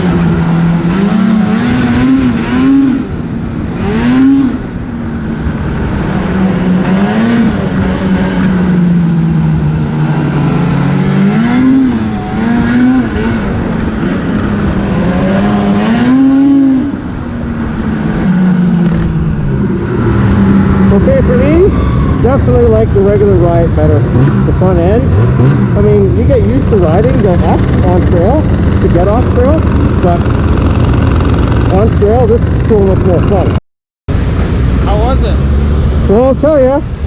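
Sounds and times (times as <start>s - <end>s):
snowmobile two-stroke engine running: 19.9s - 33.6s.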